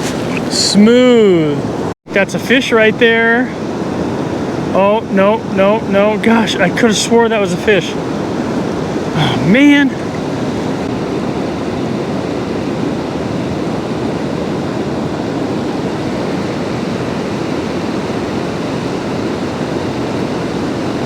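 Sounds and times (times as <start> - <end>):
river water rushing through rapids: 6.1 - 11.3.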